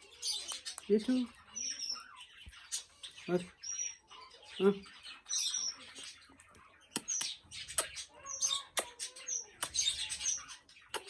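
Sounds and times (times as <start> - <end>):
parrot chirps and squeaks: 0.0 - 11.0.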